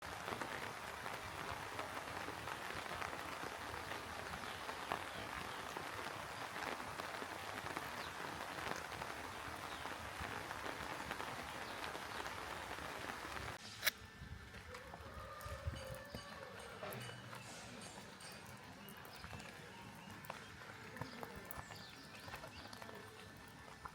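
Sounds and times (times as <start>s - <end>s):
steady rain falling: 0.0s - 23.9s.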